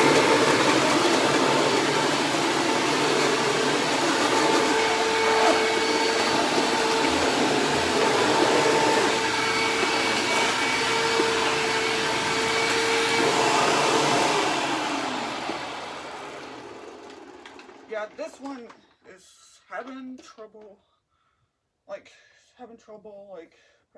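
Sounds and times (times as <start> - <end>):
upright vacuum cleaner running: 0.0 - 18.2.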